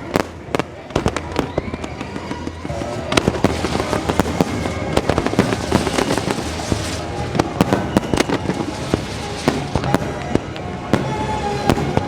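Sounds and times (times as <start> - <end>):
fireworks bangs and crackles: 0.0 - 12.0
soundtrack music: 2.7 - 12.0.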